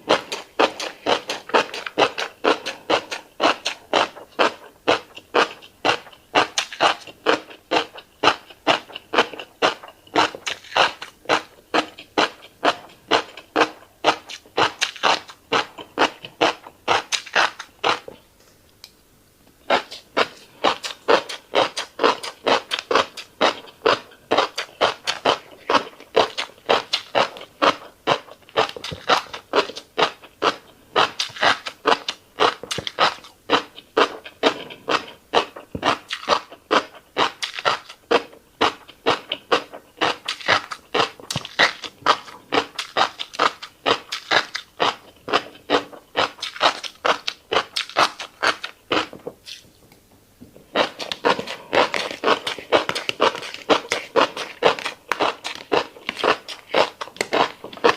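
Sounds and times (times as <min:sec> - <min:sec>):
fish roe popping while chewing: 0:19.7 - 0:49.7.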